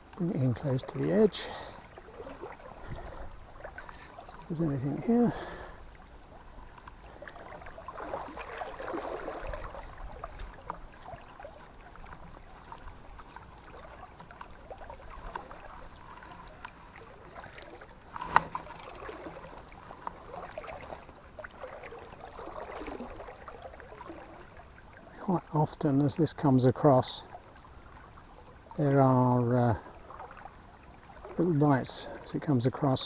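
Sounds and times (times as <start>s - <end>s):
water splashing: 0.0s - 25.8s
river water flowing and lapping: 0.0s - 33.0s.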